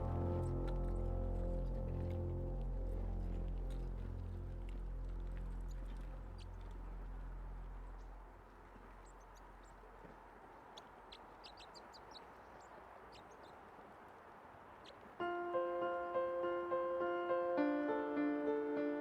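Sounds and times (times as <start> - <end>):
low sustained music tones: 0.0 - 9.4, 15.2 - 19.0.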